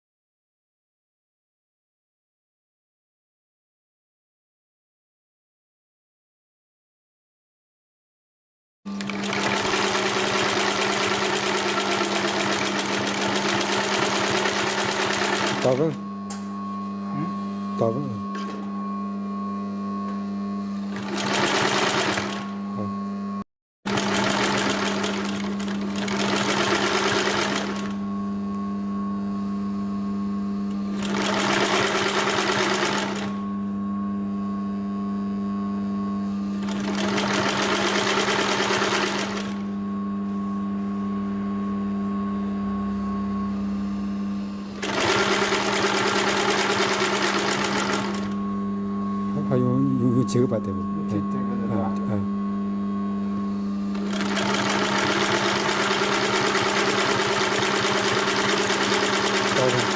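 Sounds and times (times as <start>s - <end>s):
sewing machine stitching: 8.9s - 16.0s, 20.9s - 22.6s, 23.9s - 28.0s, 30.9s - 33.4s, 36.6s - 39.6s, 44.8s - 48.4s, 53.9s - 59.9s
steady machine hum: 8.9s - 59.9s.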